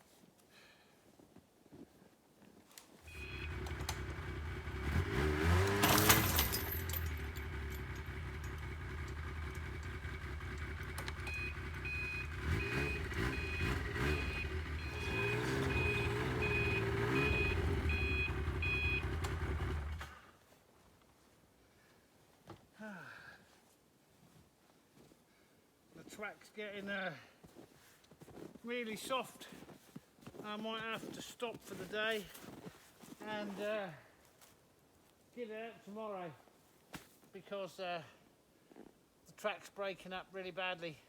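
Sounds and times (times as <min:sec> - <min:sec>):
snowmobile engine revving: 0:03.1 - 0:20.1
repeating electronic beep: 0:11.3 - 0:19.0.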